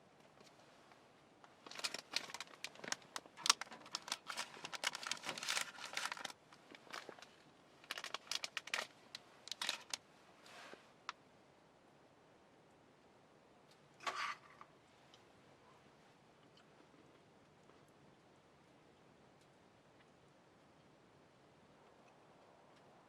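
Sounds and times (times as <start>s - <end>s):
crinkling and rustling: 0.2s - 11.2s.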